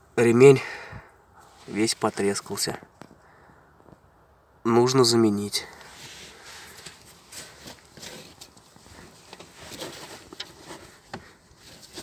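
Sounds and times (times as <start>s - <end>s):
hands handling engine parts: 5.7s - 12.0s.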